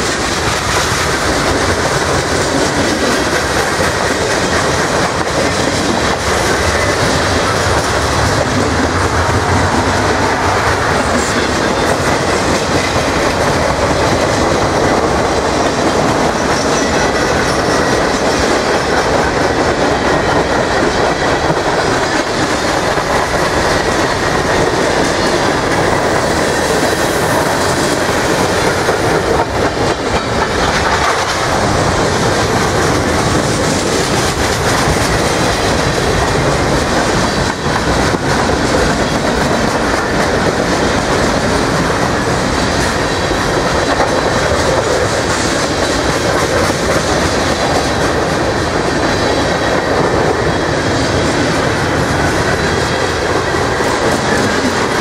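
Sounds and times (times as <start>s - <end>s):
freight train wheels rumbling on rails: 0.0s - 55.0s.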